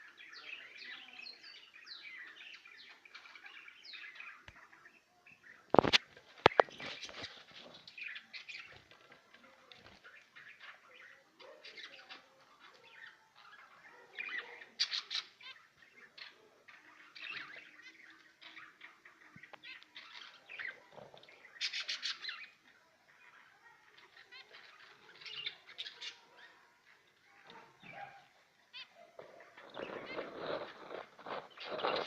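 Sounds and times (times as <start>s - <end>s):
small birds chirping: 0.0s - 32.0s
wings fluttering: 5.7s - 10.4s, 29.1s - 32.0s.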